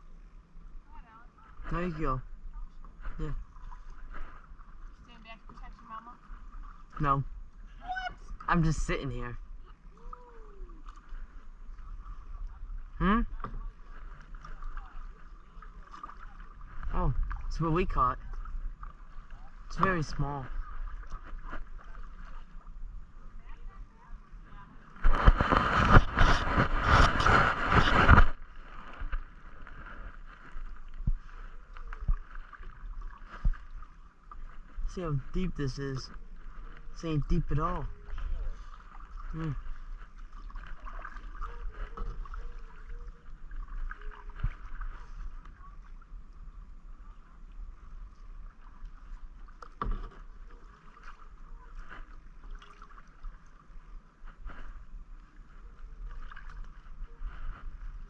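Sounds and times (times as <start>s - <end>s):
water splashing around kayak: 0.0s - 58.0s
water lapping: 0.6s - 58.0s
light knocks against hull: 49.5s - 50.5s.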